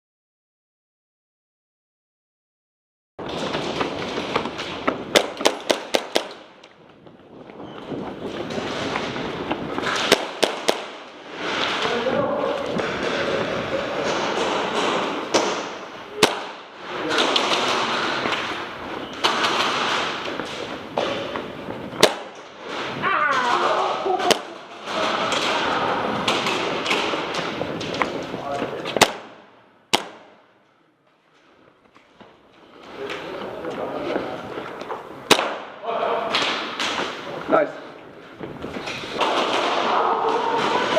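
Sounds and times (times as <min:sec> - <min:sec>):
steady background noise: 0:03.2 - 0:40.9
airsoft guns firing: 0:03.3 - 0:06.7, 0:09.6 - 0:11.9, 0:14.0 - 0:18.6, 0:19.2 - 0:21.2, 0:21.9 - 0:27.6, 0:29.0 - 0:30.4, 0:35.3 - 0:37.2, 0:39.2 - 0:40.9
airsoft gun shots: 0:05.1 - 0:06.5, 0:09.9 - 0:11.1, 0:14.4 - 0:16.7, 0:22.0 - 0:22.4, 0:29.0 - 0:30.4, 0:35.3 - 0:37.0.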